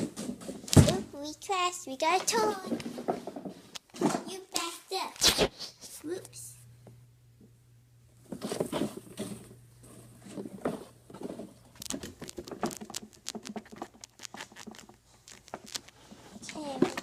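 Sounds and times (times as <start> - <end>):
small toys tapping and clicking: 11.8 - 17.0.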